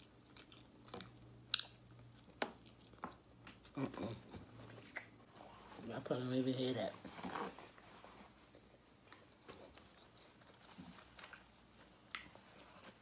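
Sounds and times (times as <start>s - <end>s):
faint chewing: 0.0s - 5.6s, 8.5s - 13.0s.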